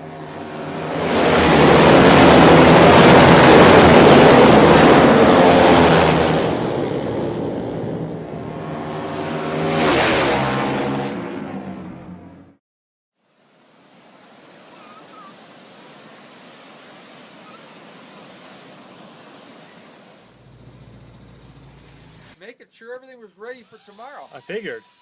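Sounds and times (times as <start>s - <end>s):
vehicle engine revving: 20.3s - 22.4s.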